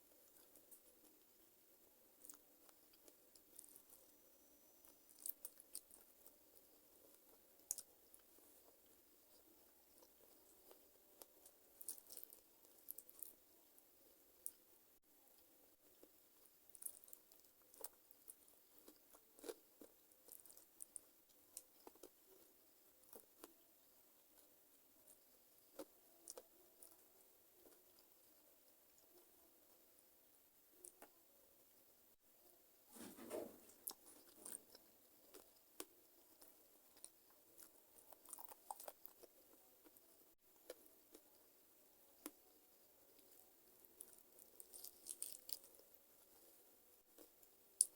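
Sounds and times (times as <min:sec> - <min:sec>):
chewing with small crunches: 0:00.0 - 0:04.2, 0:04.8 - 0:29.9, 0:33.4 - 0:47.9
chewing chicken feet: 0:33.8 - 0:41.4
wet crunching clicks: 0:44.0 - 0:45.7.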